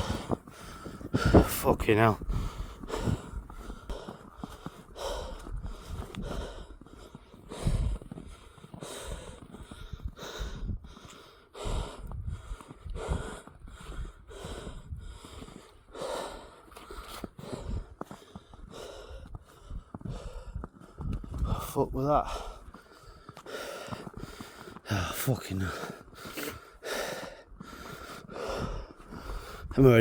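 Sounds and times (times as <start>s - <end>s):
man breathing heavily: 0.0s - 29.8s
footsteps in deep snow: 0.0s - 30.0s.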